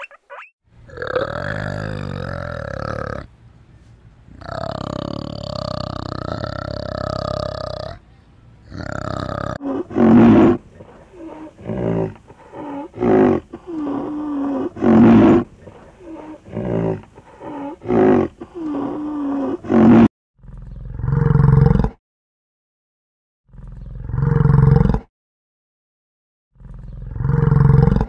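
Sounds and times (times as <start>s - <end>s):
large animal calling: 0.0s - 3.3s.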